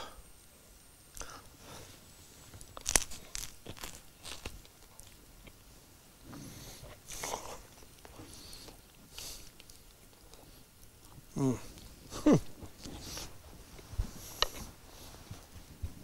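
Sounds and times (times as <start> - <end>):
soft chewing: 1.2 - 16.0
crunching pastry: 2.4 - 5.6.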